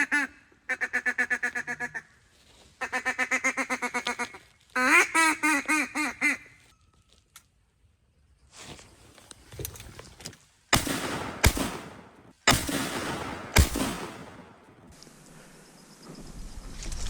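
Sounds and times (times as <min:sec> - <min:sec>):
duck call quacks: 0:00.0 - 0:02.1, 0:02.8 - 0:06.6.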